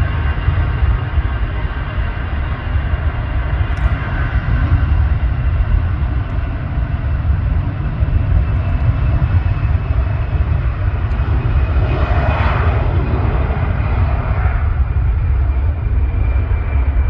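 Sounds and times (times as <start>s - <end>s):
jet airliner passing: 0.0s - 17.0s.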